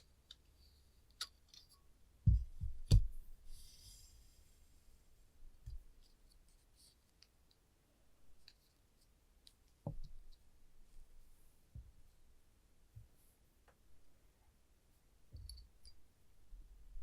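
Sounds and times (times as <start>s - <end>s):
soft thumps on a surface: 2.2s - 3.2s.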